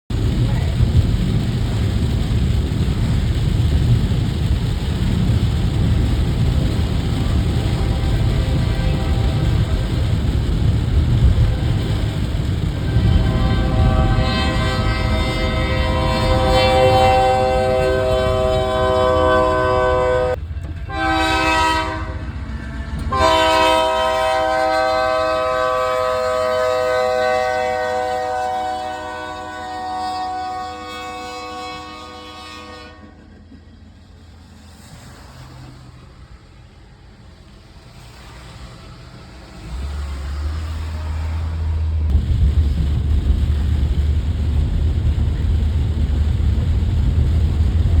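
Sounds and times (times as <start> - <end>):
passing train rumble: 0.1 - 48.0
locomotive air horn blasts: 7.1 - 10.4, 11.2 - 33.5.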